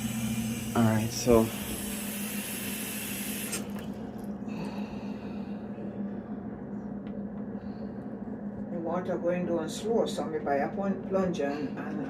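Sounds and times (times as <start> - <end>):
faucet water running into sink: 0.0 - 4.0.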